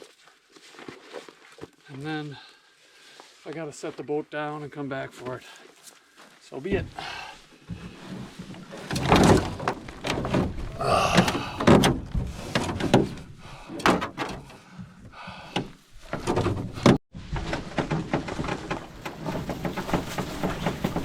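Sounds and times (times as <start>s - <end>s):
canoe and packs thumping and scraping: 6.6s - 21.0s.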